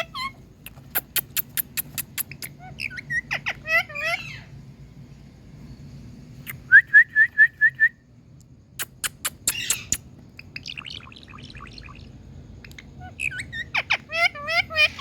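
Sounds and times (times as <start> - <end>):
parakeet calling: 0.0 - 4.6, 8.8 - 15.0
soft chattering chirps: 0.0 - 4.6, 8.8 - 15.0
sharp clicks: 0.7 - 2.5, 8.8 - 10.1.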